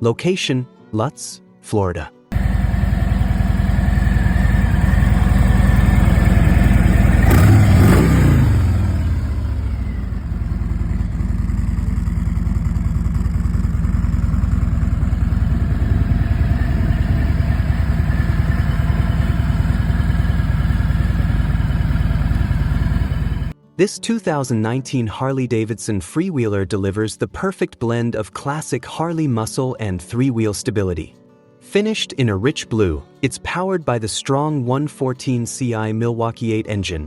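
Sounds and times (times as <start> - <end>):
motorcycle engine revving: 2.3 - 23.5
motorcycle engine idling: 2.3 - 23.6.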